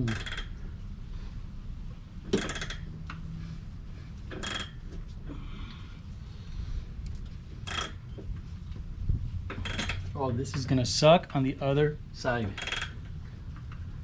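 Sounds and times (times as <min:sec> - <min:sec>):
wrench scraping on nut: 0:00.0 - 0:00.6, 0:02.3 - 0:02.9, 0:04.3 - 0:04.9, 0:07.7 - 0:08.2, 0:09.5 - 0:10.1, 0:12.5 - 0:13.0.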